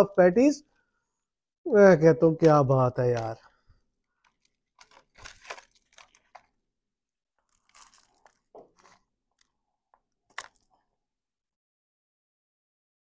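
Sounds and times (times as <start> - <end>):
crunchy pastry chewing: 4.1 - 6.6, 7.4 - 10.8.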